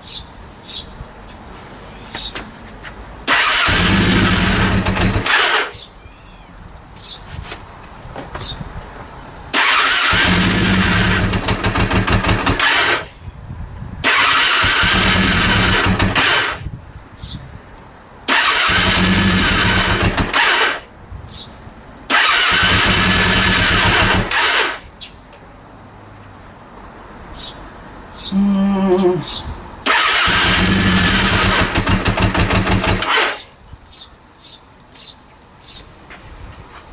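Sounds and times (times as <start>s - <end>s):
motorcycle electric starter cranking: 3.2s - 5.9s, 9.5s - 13.2s, 14.0s - 16.7s, 18.3s - 20.9s, 22.1s - 24.9s, 29.8s - 33.6s.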